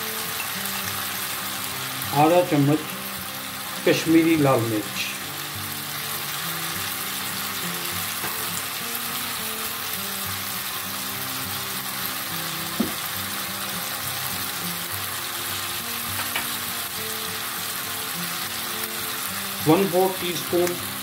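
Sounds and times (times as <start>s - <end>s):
soft background music: 0.0s - 21.0s
vegetables sizzling in a pan: 0.0s - 21.0s.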